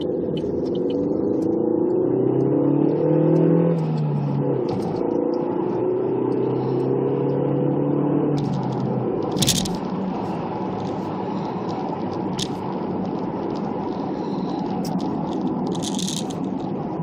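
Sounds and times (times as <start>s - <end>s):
vehicle engine accelerating: 0.0s - 17.0s.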